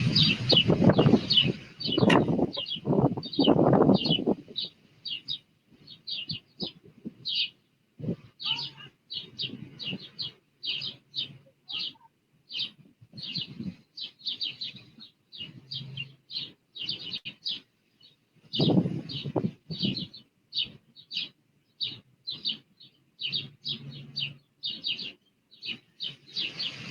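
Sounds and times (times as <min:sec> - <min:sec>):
low rushing noise: 0:00.0 - 0:02.6
small birds chirping: 0:00.0 - 0:26.9.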